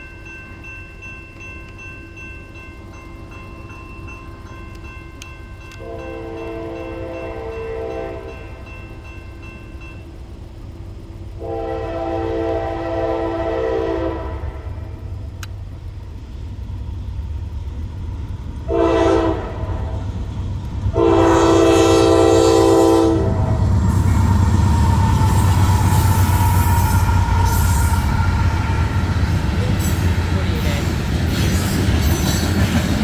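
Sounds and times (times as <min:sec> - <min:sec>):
train engines and wheels rumbling: 0:00.0 - 0:33.0
locomotive air horn blasts: 0:05.8 - 0:08.5, 0:11.4 - 0:15.0, 0:18.7 - 0:20.0, 0:20.9 - 0:24.2.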